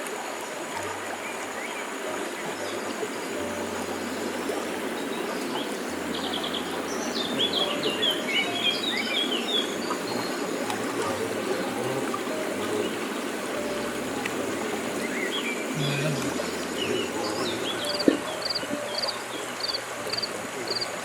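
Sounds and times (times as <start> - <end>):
forest stream running: 0.0 - 21.0
small bird chirping and trilling: 17.7 - 20.8.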